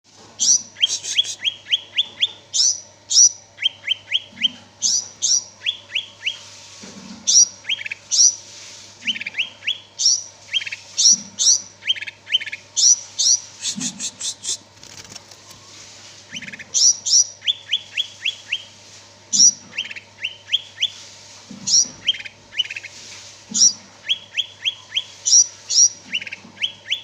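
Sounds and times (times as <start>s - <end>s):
bird singing chirps and whistles: 0.4s - 6.4s, 7.3s - 8.4s, 9.0s - 13.5s, 16.4s - 18.7s, 19.3s - 21.0s, 21.7s - 22.9s, 23.6s - 27.0s.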